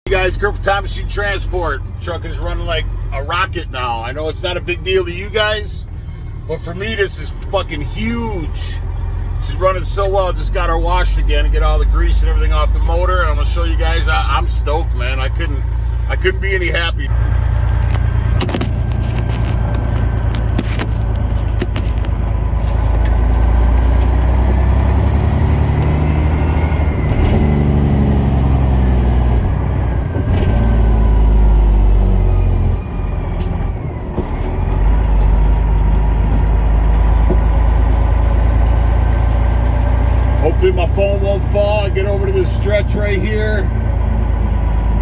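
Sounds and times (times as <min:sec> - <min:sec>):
truck diesel engine accelerating: 0:00.1 - 0:45.0.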